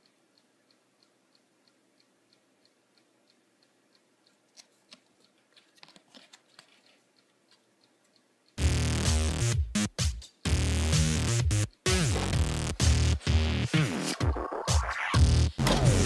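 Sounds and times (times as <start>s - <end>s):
faint steady ticking: 0.0s - 16.0s
card clicks and rustles: 4.5s - 7.7s
electronic music with drum-machine beat: 8.6s - 16.0s.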